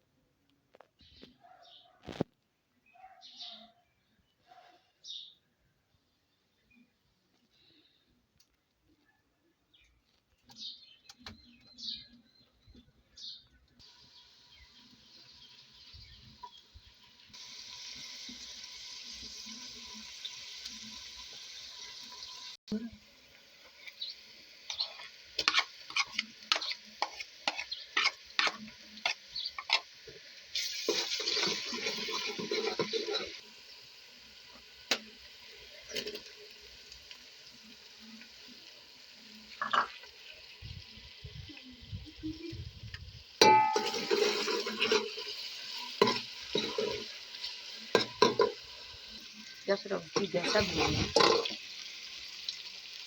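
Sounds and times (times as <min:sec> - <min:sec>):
hissing frying: 0:13.7 - 0:53.0
utensil scraping a pan: 0:24.7 - 0:33.4, 0:43.4 - 0:48.6
pan lid ringing: 0:43.4 - 0:45.0.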